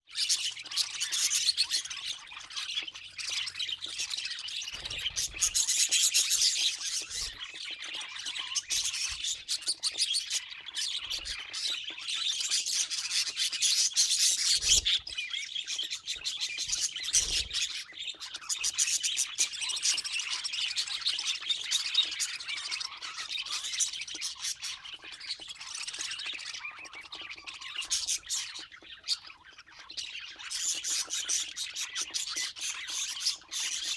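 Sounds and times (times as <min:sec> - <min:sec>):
budgerigars chattering and warbling: 0:00.1 - 0:33.9.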